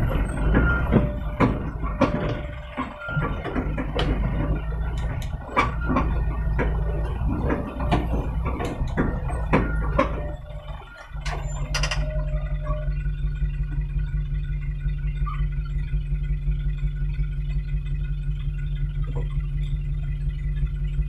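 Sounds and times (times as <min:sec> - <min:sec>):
metallic clanks and knocks: 0:00.0 - 0:13.0
truck engine running: 0:00.0 - 0:21.0.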